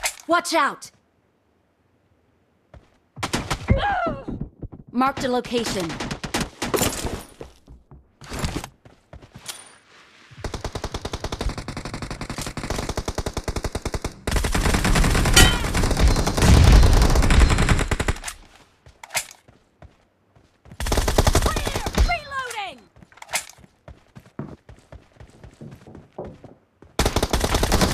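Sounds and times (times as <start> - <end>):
video game automatic gunfire: 27.0 - 27.9.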